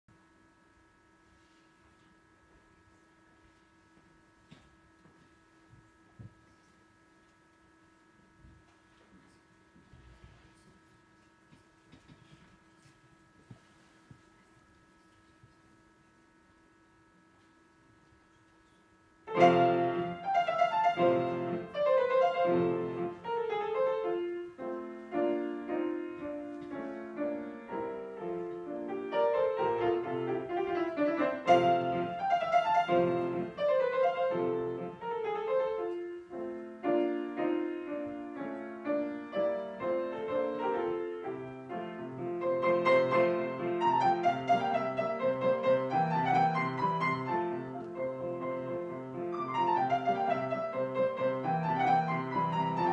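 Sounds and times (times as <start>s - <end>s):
classical piano music: 19.2s - 52.9s.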